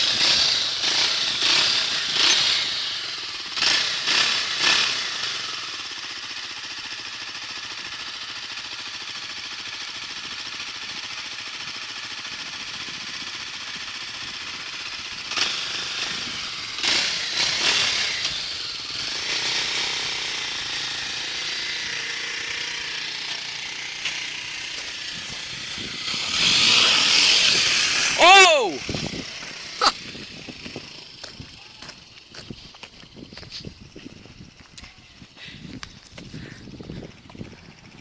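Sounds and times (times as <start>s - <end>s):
dirt bike engine buzzing: 0.0s - 38.0s.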